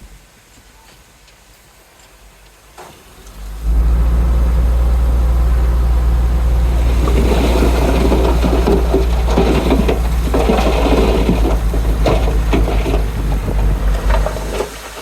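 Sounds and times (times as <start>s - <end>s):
diesel engine droning: 3.0s - 14.9s
rough scraping rattle: 3.5s - 15.0s.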